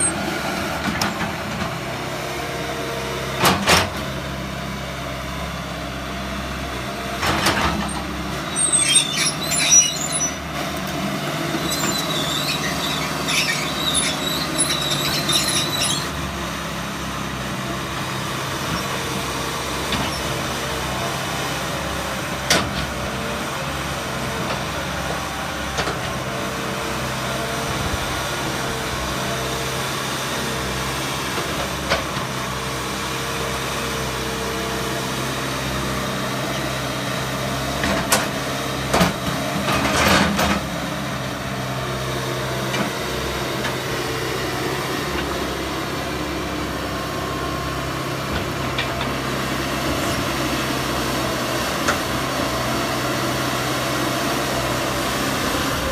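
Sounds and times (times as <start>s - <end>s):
excavator diesel engine running: 0.0s - 55.9s
clicks and high squeaks: 7.9s - 10.4s, 11.6s - 16.2s.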